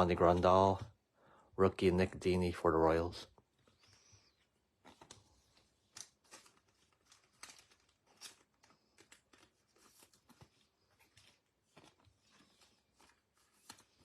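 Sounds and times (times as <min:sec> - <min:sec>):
trading cards clicking and rustling: 0:03.7 - 0:14.0.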